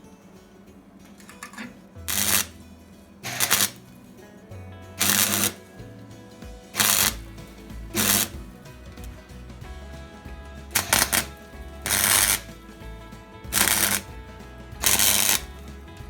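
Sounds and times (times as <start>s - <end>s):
welder crackling bursts: 2.1s - 2.6s, 3.2s - 3.9s, 5.0s - 5.7s, 6.7s - 9.2s, 10.7s - 12.7s, 13.5s - 14.2s, 14.8s - 15.7s.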